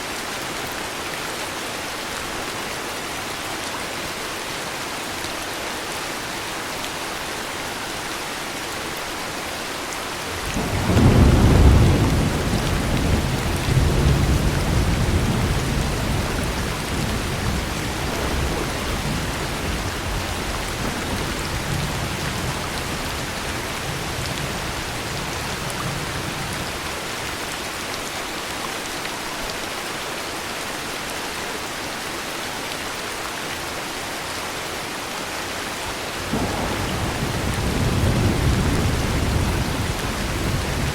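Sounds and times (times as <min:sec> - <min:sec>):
heavy rain: 0:00.0 - 0:40.9
thunder rumbling: 0:10.3 - 0:26.8, 0:36.2 - 0:40.9.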